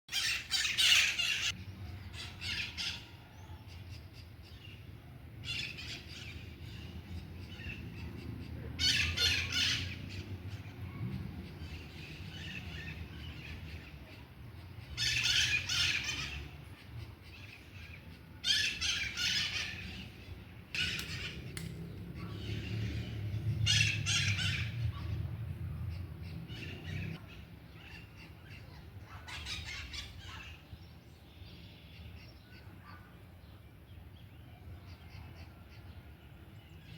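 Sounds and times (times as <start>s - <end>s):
harsh bird squawks: 0.1s - 1.6s, 8.8s - 10.2s, 15.0s - 16.6s, 18.4s - 20.2s, 22.2s - 25.2s, 26.5s - 30.7s
low steady rumble: 19.5s - 27.8s.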